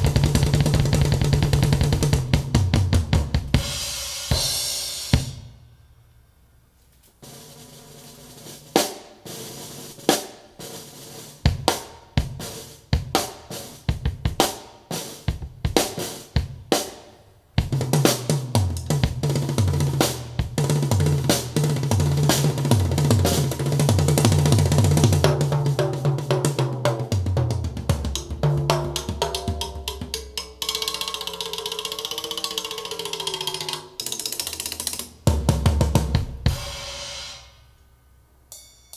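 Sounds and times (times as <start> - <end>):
drum hits: 0.0 - 5.6, 17.6 - 31.4
wavering tone: 30.4 - 34.0.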